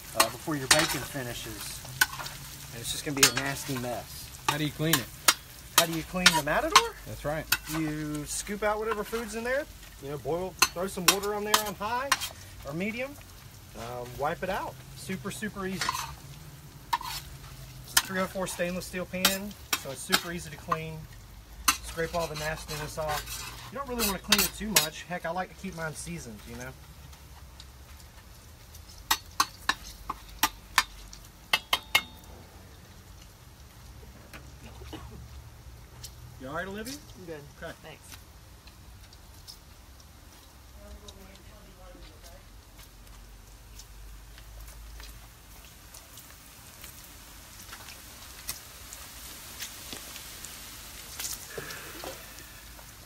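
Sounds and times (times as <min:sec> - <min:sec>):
food sizzling in a pan: 0:00.0 - 0:53.0
grease crackling and popping: 0:00.0 - 0:53.0
metal utensil clinking in pan: 0:00.2 - 0:08.0, 0:29.1 - 0:32.3.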